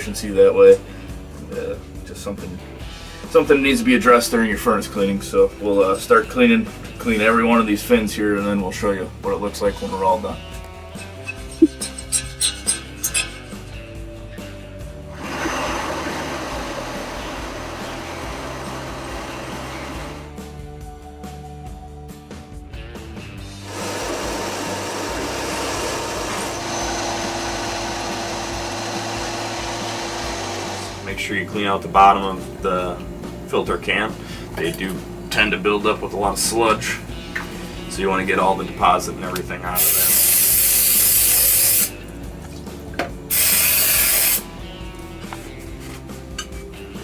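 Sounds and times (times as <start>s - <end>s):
steady hum: 26.1s - 39.6s
hissing spray: 39.8s - 42.0s, 43.3s - 44.5s.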